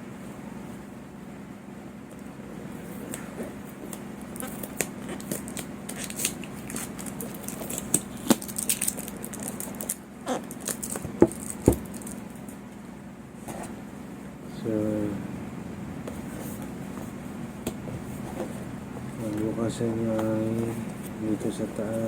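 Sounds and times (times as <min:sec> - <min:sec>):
cardboard box rustling: 0:17.8 - 0:21.2.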